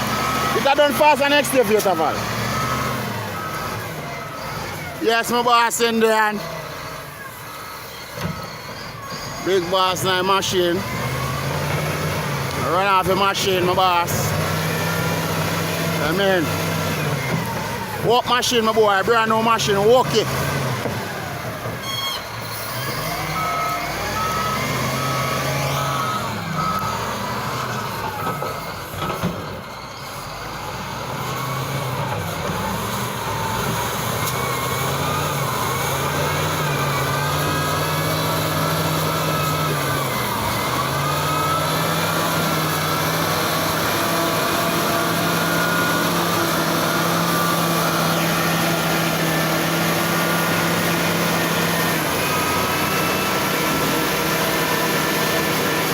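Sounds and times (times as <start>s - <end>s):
reversing alarm beeping: 0.0s - 11.7s, 21.8s - 28.9s, 34.5s - 55.6s
wheel loader diesel engine: 0.0s - 55.9s.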